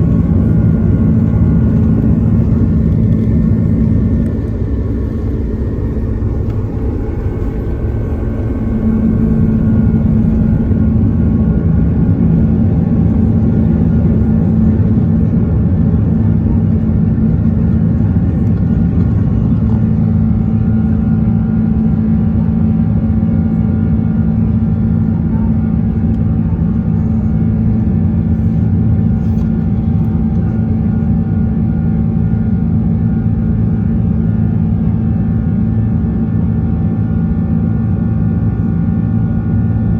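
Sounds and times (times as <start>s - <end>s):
steady cabin hum: 0.0s - 21.0s
jet engines roaring at takeoff: 0.0s - 39.9s.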